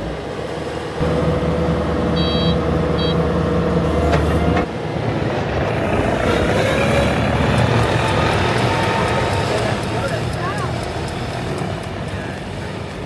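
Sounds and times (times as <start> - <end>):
skid steer engine running: 0.0 - 13.0
short high electronic beeps: 2.2 - 3.2.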